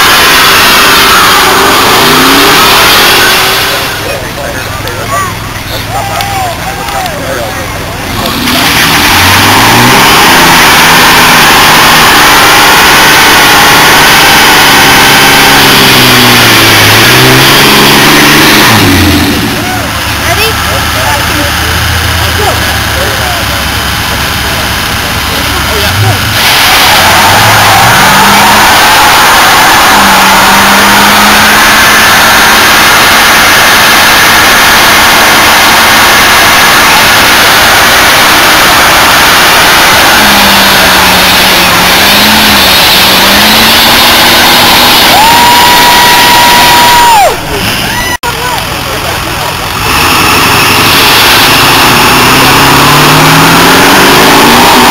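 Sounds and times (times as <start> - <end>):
car engine at high revs: 0.0 - 54.9
hiss of spinning tyres: 26.3 - 45.2.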